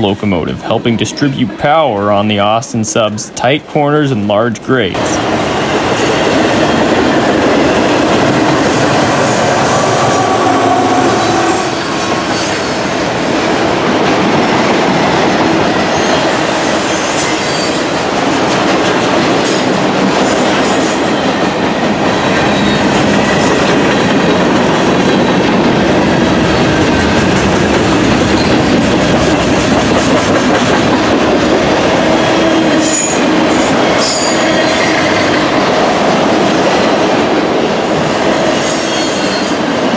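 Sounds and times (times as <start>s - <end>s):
freight train wheels on rail: 0.0s - 39.9s.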